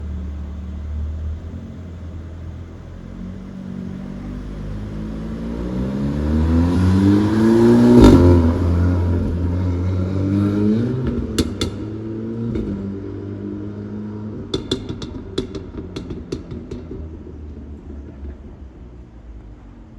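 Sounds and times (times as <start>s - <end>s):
car engine revving: 0.0s - 19.2s
exhaust pops and crackles: 11.0s - 12.9s, 14.4s - 19.9s.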